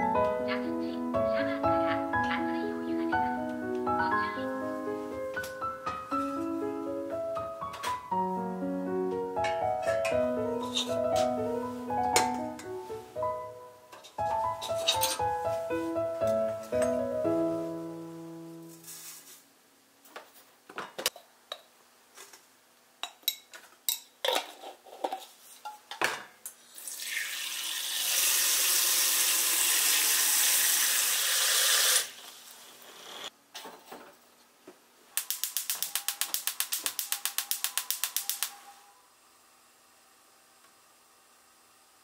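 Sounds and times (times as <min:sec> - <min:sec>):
kitchen tap running: 0:26.7 - 0:33.0.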